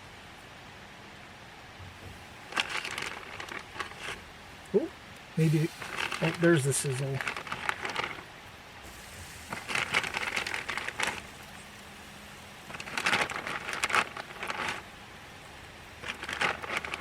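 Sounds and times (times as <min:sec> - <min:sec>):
meat sizzling on a grill: 0:05.4 - 0:17.0.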